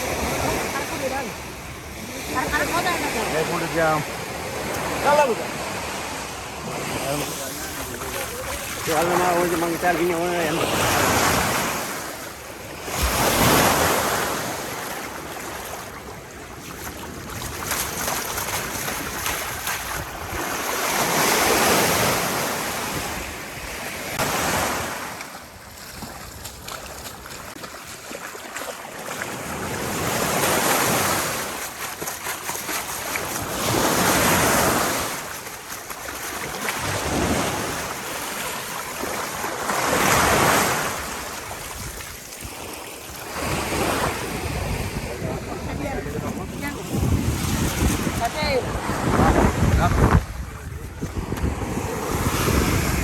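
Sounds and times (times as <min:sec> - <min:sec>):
surf washing onto beach: 0:00.0 - 0:53.0
wind buffeting microphone: 0:43.4 - 0:53.0.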